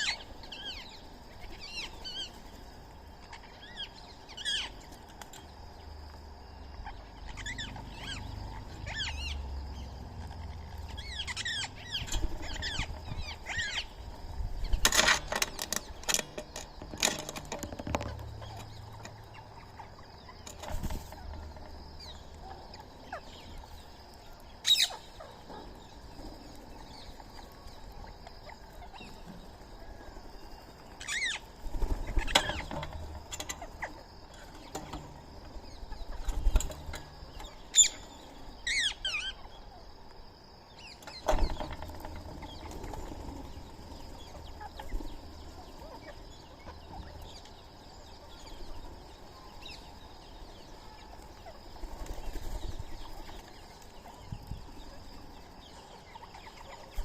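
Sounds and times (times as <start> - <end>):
birds calling: 0.0 - 57.0.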